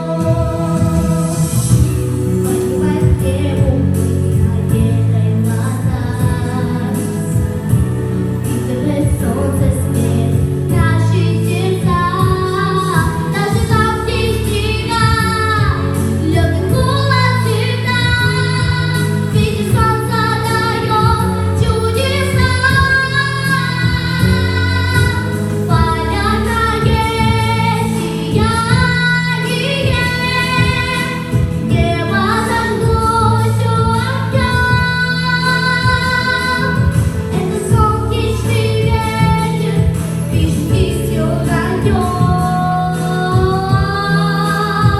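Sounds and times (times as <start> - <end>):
instrumental backing: 0.0 - 44.9
woman singing: 0.0 - 44.9.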